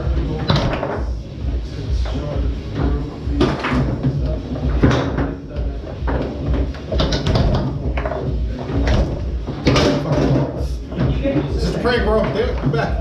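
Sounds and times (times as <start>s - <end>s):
background music: 0.0s - 13.0s
foosball ball knocking: 2.8s - 5.4s, 6.0s - 11.5s.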